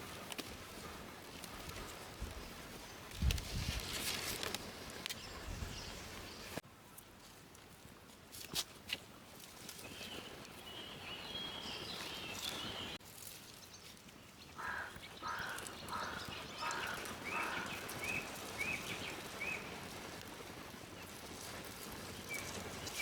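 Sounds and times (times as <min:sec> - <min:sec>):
birds calling: 0:14.4 - 0:19.8
high bird twittering: 0:14.6 - 0:19.7.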